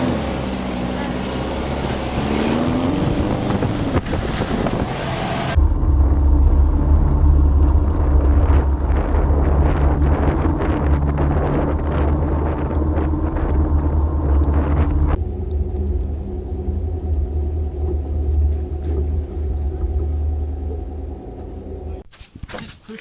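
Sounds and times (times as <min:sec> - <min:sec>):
car engine accelerating: 0:00.0 - 0:22.0
deep steady rumble: 0:00.0 - 0:22.1
wind noise on microphone: 0:02.4 - 0:20.4.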